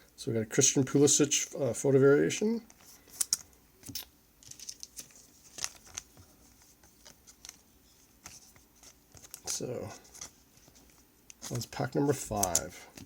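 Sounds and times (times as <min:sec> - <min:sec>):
trading cards clicking and scraping: 0:02.7 - 0:13.0.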